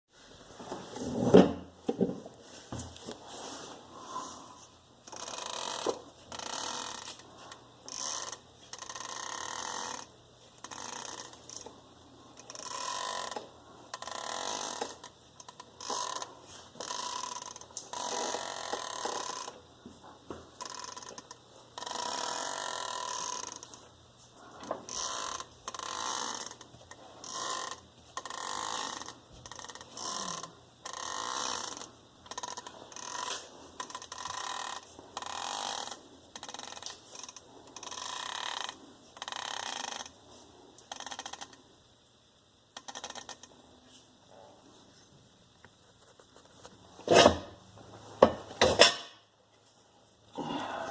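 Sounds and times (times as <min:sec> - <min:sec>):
universal joint creaking and grinding: 0:04.0 - 0:41.8, 0:42.6 - 0:44.4, 0:46.6 - 0:47.6.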